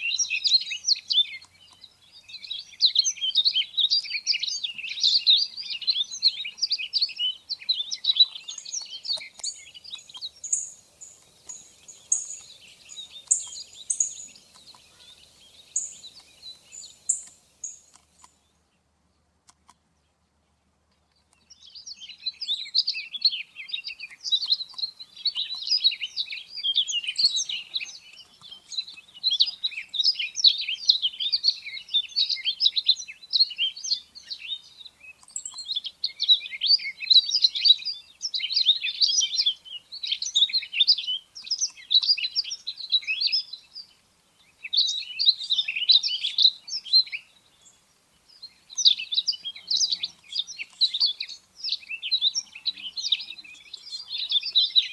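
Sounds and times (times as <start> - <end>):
bunting twittering song: 0.0 - 18.6, 21.4 - 54.9
high bird call notes: 8.8 - 18.0.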